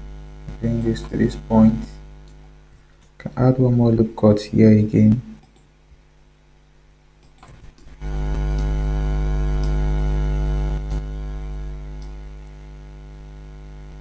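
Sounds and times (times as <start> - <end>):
electrical mains hum: 0.0 - 14.0
faint clicks: 2.2 - 3.2, 5.1 - 5.7, 7.2 - 8.8, 9.6 - 9.8, 12.0 - 12.6.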